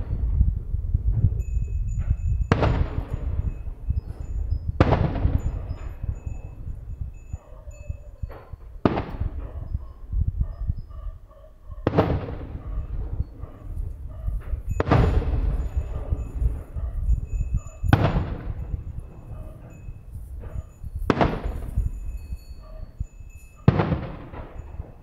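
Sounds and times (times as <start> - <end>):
fireworks bursting with echo: 2.0 - 7.2, 8.2 - 9.7, 11.8 - 22.2, 23.0 - 25.0.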